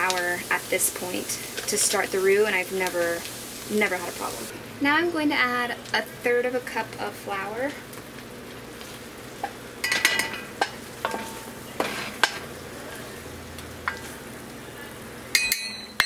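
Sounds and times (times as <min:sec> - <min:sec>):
butter and onions sizzling: 0:00.0 - 0:15.3
ringing metal clinks: 0:15.4 - 0:16.0.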